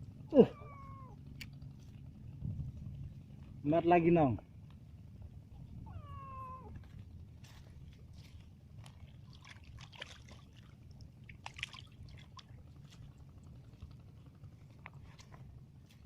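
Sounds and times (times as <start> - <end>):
low steady rumble: 0.0 - 16.0
small water splashes and drips: 8.2 - 13.4.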